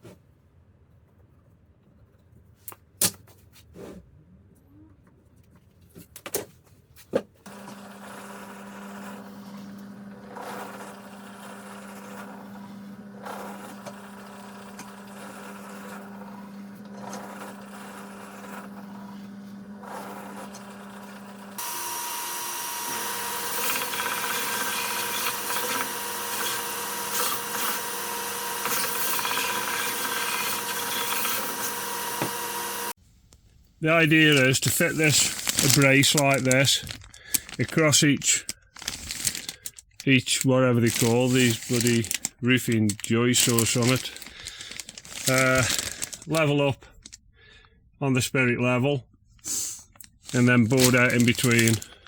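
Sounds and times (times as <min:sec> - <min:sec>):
harsh power tool running: 0:07.5 - 0:33.0, 0:34.3 - 0:37.8, 0:38.8 - 0:39.6, 0:40.8 - 0:46.5, 0:50.2 - 0:52.0
power tool motor running: 0:07.5 - 0:33.0, 0:34.9 - 0:37.7, 0:38.8 - 0:40.0, 0:40.8 - 0:46.5, 0:50.2 - 0:52.0.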